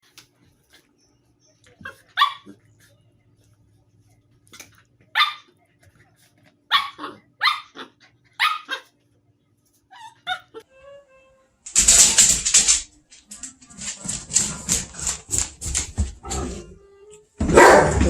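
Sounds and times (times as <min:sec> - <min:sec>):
dog barking: 0:01.8 - 0:02.6, 0:05.2 - 0:05.5, 0:06.7 - 0:08.9, 0:17.4 - 0:18.0.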